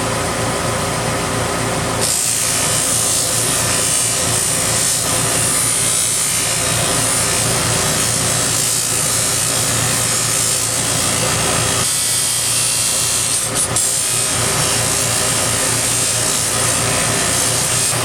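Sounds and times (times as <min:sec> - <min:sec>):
scroll saw rasping through metal: 0:02.0 - 0:18.0.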